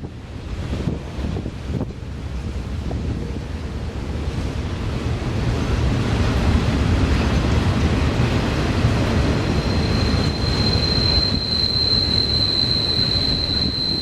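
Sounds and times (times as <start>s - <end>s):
train wheels rumbling on rail: 0.0s - 14.0s
high wheel squeal: 9.4s - 14.0s.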